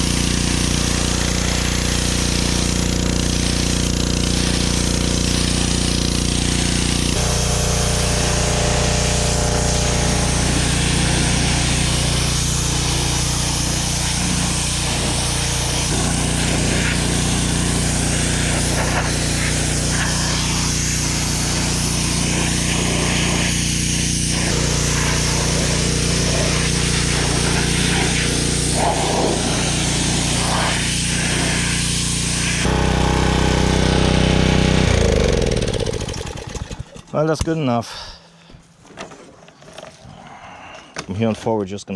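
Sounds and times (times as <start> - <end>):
water spray hiss: 0.0 - 32.8
pressure washer engine: 0.0 - 37.4.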